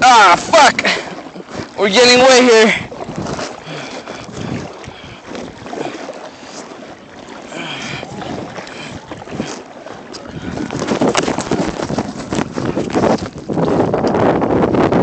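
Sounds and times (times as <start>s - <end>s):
water splashing around kayak: 0.0s - 15.0s
wind buffeting microphone: 0.0s - 15.0s.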